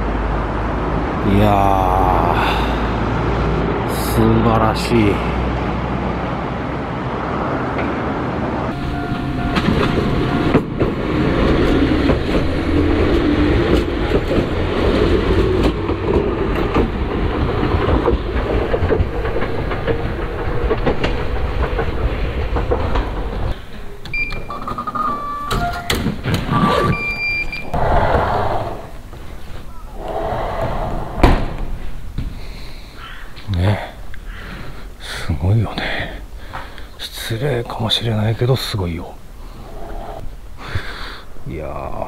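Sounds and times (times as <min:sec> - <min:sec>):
electric train rumbling: 0:00.0 - 0:24.2, 0:27.6 - 0:42.0
short high tones: 0:08.7 - 0:10.7.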